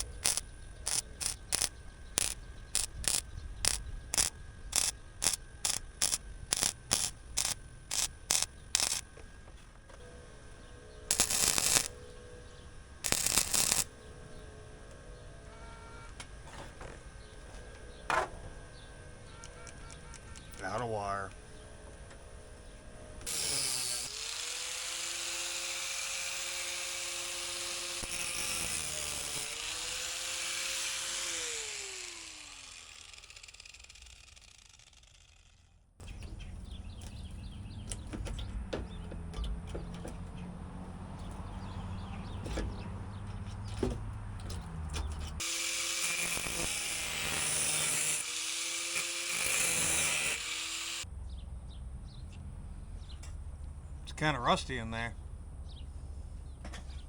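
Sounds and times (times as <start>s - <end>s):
power tool cutting sheet metal: 0.0s - 9.0s, 11.1s - 12.0s, 13.0s - 13.9s, 23.2s - 35.6s, 45.4s - 51.1s.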